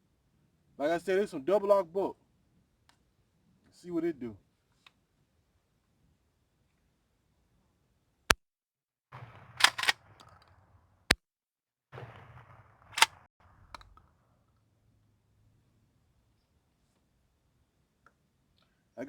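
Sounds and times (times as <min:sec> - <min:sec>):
shotgun shots: 0:09.1 - 0:10.8, 0:11.9 - 0:13.3
sharp clicks: 0:09.6 - 0:10.5, 0:13.0 - 0:14.1.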